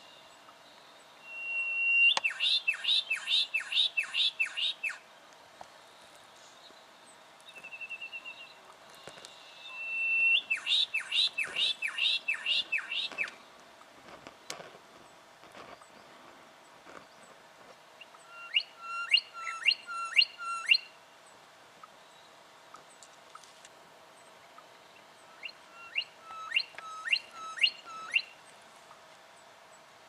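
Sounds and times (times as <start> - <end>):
hawk calling: 1.3 - 5.0, 9.6 - 13.4, 25.3 - 28.3.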